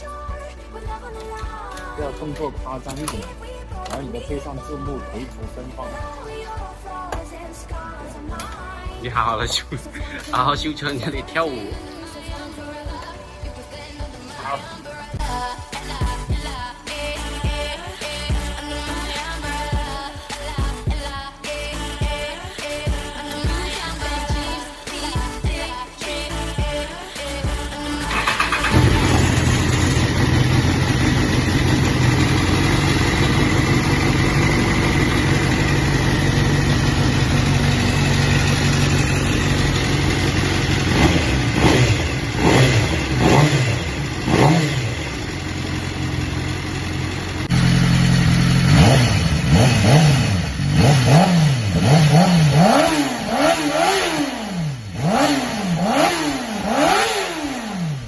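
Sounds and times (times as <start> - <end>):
motorcycle engine idling: 27.4 - 58.0
motorcycle throttle revs: 28.1 - 58.0.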